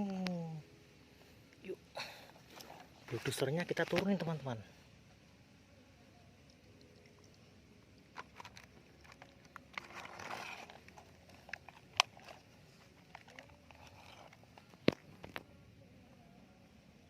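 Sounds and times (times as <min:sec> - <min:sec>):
scraping rustle: 0:08.2 - 0:15.2.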